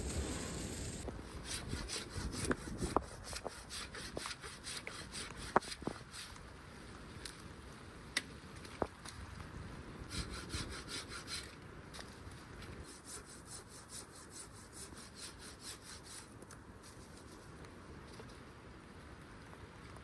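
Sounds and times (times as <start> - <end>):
hand saw cutting wood: 1.4 - 6.4, 10.1 - 11.5, 12.8 - 16.3.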